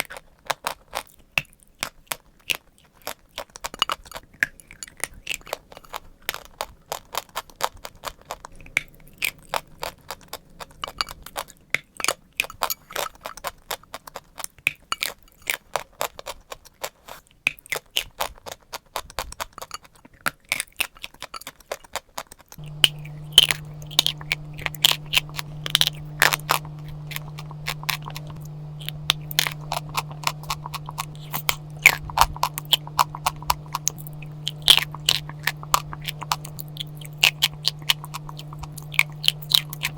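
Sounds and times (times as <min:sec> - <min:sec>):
chalk crunching in mouth: 0:22.6 - 0:39.9
steady low hum: 0:22.6 - 0:39.9.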